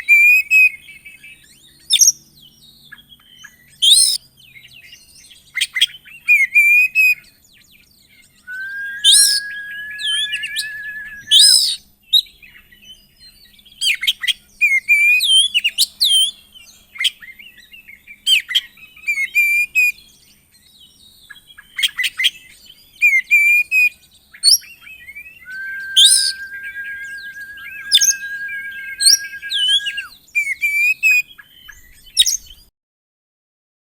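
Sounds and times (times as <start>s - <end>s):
bird singing varied song: 8.5s - 11.6s, 25.5s - 30.1s
bird long steady trill: 8.5s - 11.7s, 25.5s - 30.1s.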